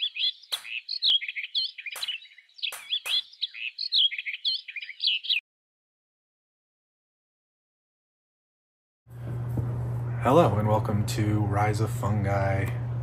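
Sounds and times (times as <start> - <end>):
bird chirping rapidly: 0.0 - 5.4
sharp clicks: 1.9 - 3.3.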